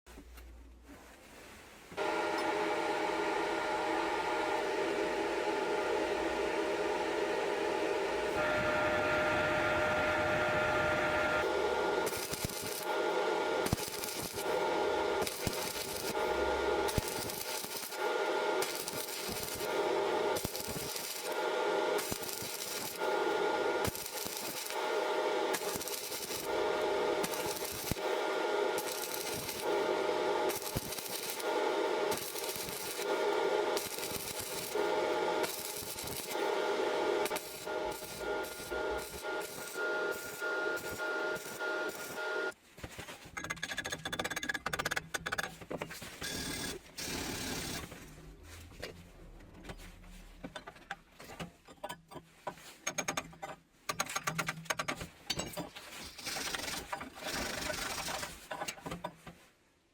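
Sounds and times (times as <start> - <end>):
steady high hum: 2.0 - 42.6.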